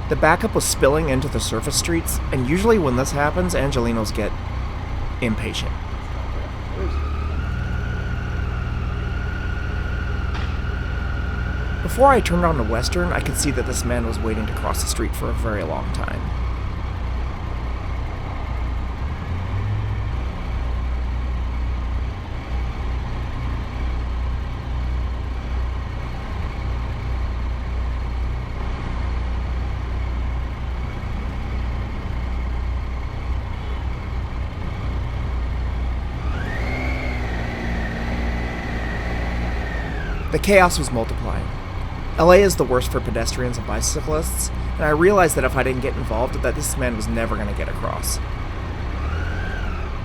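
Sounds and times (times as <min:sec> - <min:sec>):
motorcycle engine running: 0:00.0 - 0:50.0
high-pitched tone: 0:40.3 - 0:41.6.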